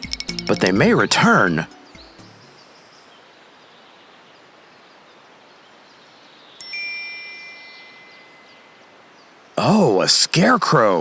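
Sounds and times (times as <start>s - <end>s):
faint outdoor hiss: 0.0s - 11.0s
bright chime: 6.6s - 8.8s.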